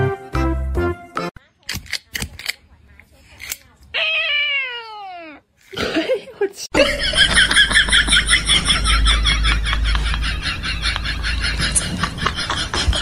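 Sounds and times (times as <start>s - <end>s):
person laughing: 5.8s - 13.0s.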